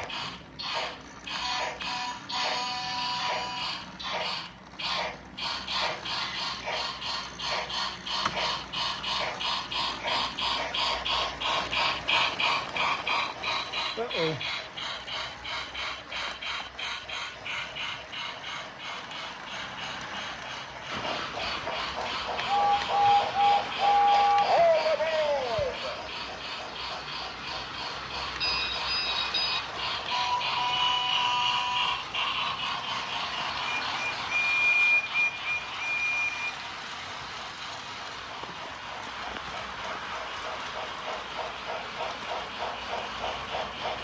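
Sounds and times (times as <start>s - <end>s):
mechanical whir: 0.0s - 44.0s
toy train wheels clicking on track: 0.0s - 44.0s
toy train whistle toots: 0.6s - 4.5s, 22.3s - 26.1s, 28.4s - 32.6s, 33.5s - 36.6s
running hiss: 4.8s - 44.0s.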